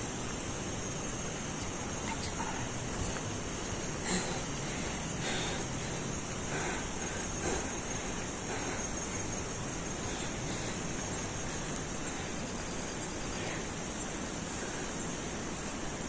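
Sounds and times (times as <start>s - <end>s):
background hiss: 0.0s - 16.0s
crickets trilling: 0.0s - 16.0s.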